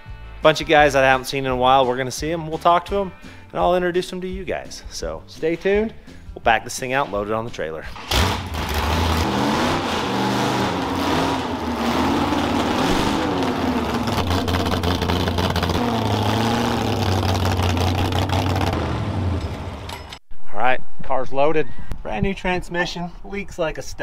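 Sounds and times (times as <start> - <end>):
car engine revving: 8.0 - 19.9.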